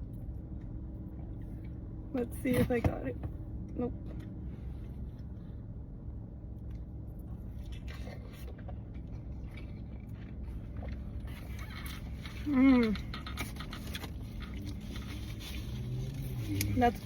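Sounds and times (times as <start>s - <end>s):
steady low hum: 0.0s - 17.0s
faint chewing: 6.5s - 17.0s.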